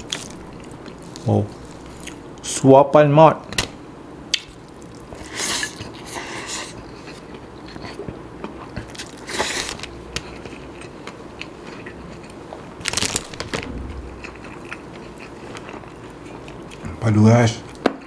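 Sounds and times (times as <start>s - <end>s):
chewing mouth sounds: 14.0s - 17.0s.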